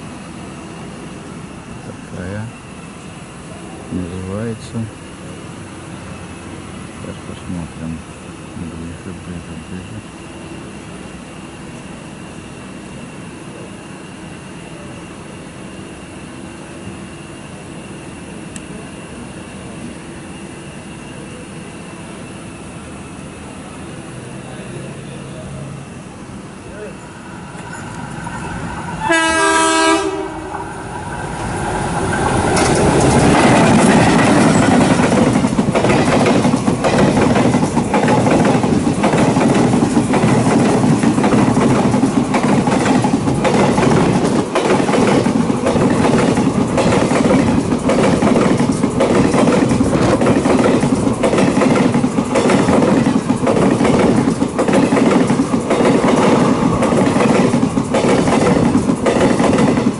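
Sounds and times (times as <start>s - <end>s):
train rushing noise: 0.0s - 59.9s
train horn: 29.0s - 30.5s
wheel clacks over rail joints: 32.2s - 59.9s.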